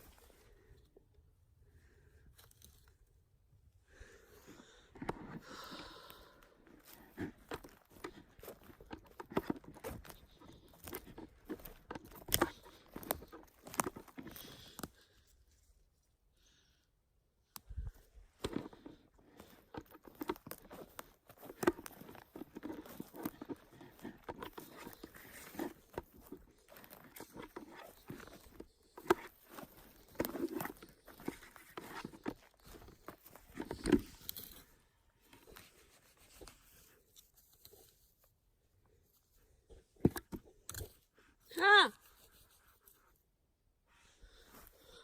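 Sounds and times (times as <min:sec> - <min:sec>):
crunching of dry undergrowth: 0:04.0 - 0:15.8, 0:17.6 - 0:38.3
twigs snapping: 0:06.8 - 0:14.9, 0:18.4 - 0:34.6.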